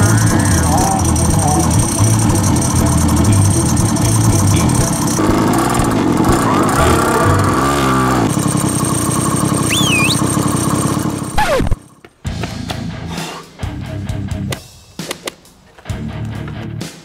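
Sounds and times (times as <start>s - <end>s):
music playing: 0.0s - 8.0s
small engine running: 0.0s - 12.4s.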